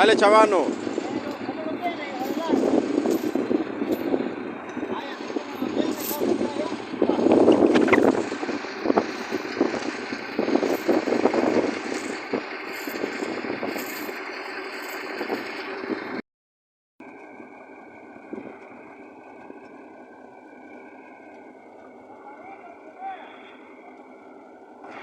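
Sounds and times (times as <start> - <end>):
heavy engines under load: 0.0 - 16.2, 17.0 - 25.0.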